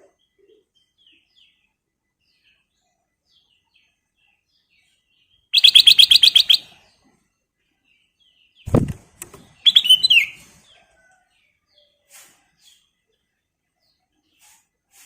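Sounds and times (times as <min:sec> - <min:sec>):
bird chirping and chattering: 0:05.5 - 0:06.8, 0:08.7 - 0:10.4.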